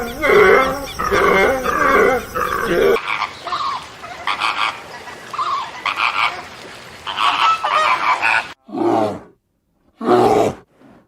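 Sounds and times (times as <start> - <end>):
waterfowl honking calls: 0.0 - 8.6.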